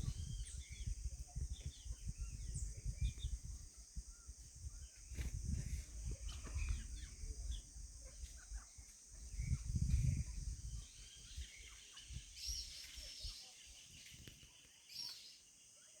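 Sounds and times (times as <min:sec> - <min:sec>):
low rumble on microphone: 0:00.0 - 0:12.5
birds chirping: 0:00.0 - 0:16.0
high insect drone: 0:00.0 - 0:16.0.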